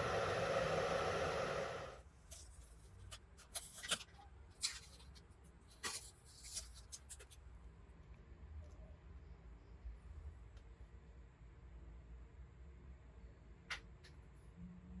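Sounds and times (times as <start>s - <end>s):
hairdryer blowing: 0.0s - 2.0s
small parts scratching and clicking: 2.2s - 7.4s.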